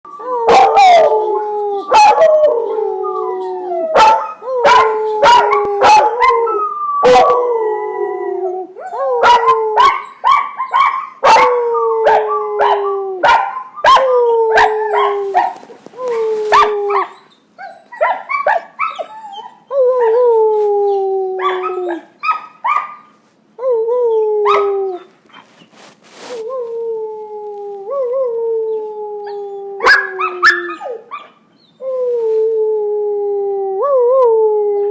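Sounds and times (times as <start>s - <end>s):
puppies howling: 0.1s - 25.1s, 27.7s - 31.4s
puppies yipping and barking: 16.6s - 19.6s.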